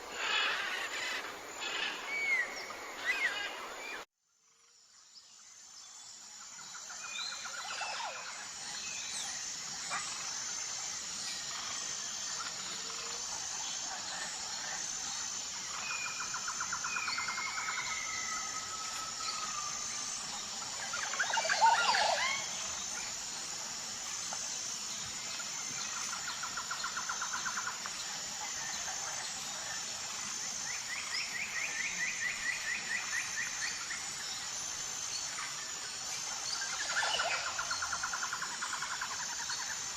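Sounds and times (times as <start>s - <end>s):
birds trilling: 0.0s - 4.0s
cluster of bird calls: 0.0s - 4.1s, 11.3s - 23.2s
high-pitched insect drone: 0.0s - 39.9s.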